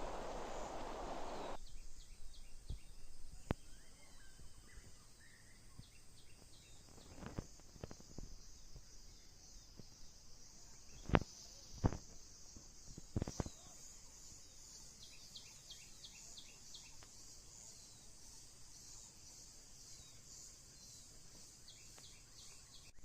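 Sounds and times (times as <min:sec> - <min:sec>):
bird chirps: 0:00.0 - 0:07.3
insect hum: 0:00.0 - 0:23.0.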